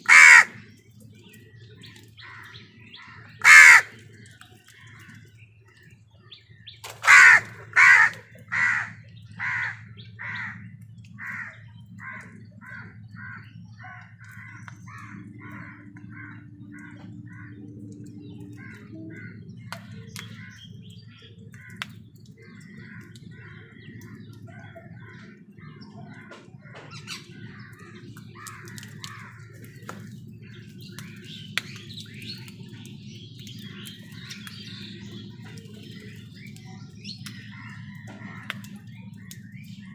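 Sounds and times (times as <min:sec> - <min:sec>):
crow cawing: 0:00.0 - 0:00.6, 0:03.1 - 0:04.0, 0:06.9 - 0:20.6, 0:21.5 - 0:30.0
low background hum: 0:00.0 - 0:39.9
small birds chirping softly: 0:00.0 - 0:39.9.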